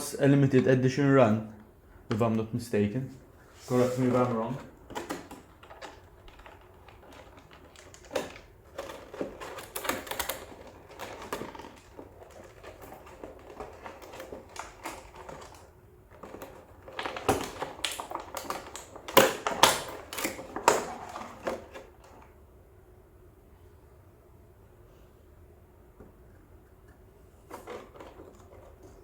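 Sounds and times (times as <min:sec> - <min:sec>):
box packaging being handled: 0:03.5 - 0:22.4, 0:27.4 - 0:29.0.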